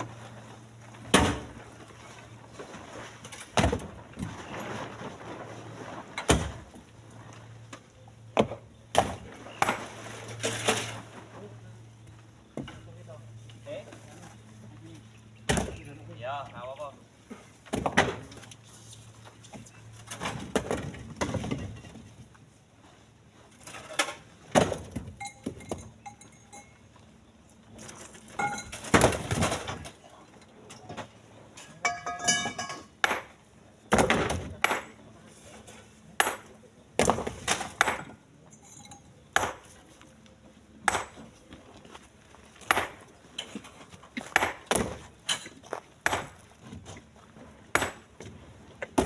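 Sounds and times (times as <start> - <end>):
stones landing in truck bed: 1.0 - 1.7, 2.5 - 6.8, 17.6 - 18.5, 20.1 - 22.1, 23.7 - 25.9, 28.3 - 30.0, 31.8 - 34.9, 37.0 - 38.2, 42.5 - 47.0, 47.7 - 49.0.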